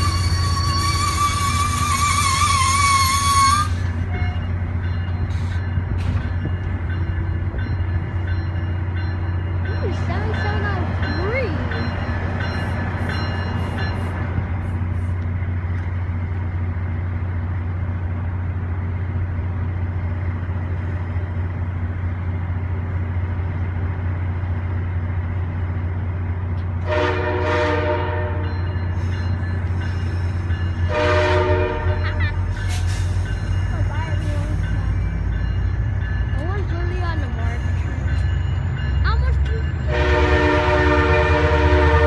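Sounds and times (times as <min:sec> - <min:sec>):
train rumbling past: 0:00.0 - 0:42.0
train horn blast: 0:00.1 - 0:04.5, 0:26.8 - 0:28.6, 0:30.9 - 0:32.2, 0:39.9 - 0:42.0.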